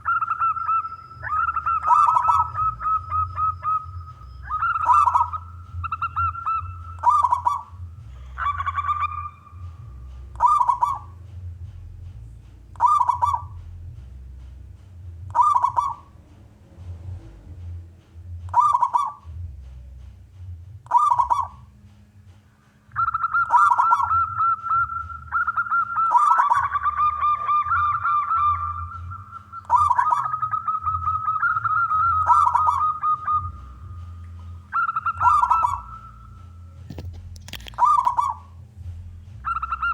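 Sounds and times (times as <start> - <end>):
dove cooing: 0.0 - 20.0, 20.8 - 21.9, 22.7 - 39.9
steady low hum: 0.0 - 39.9.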